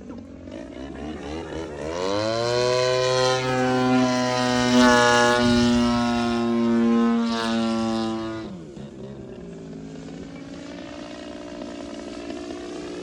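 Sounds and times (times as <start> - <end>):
model plane engine revving: 0.0 - 13.0.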